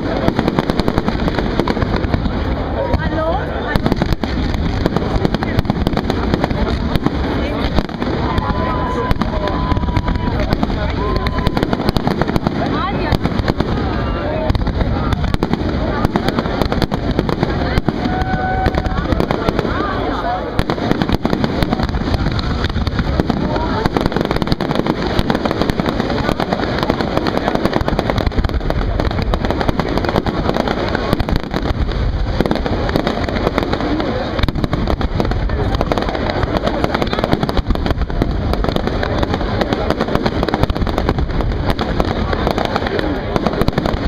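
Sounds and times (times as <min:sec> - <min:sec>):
fireworks bursting and crackling: 0:00.0 - 0:44.0.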